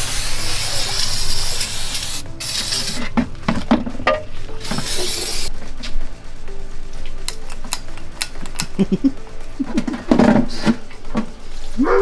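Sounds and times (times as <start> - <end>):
hissing air bursts: 0.0 - 3.2, 4.6 - 5.5.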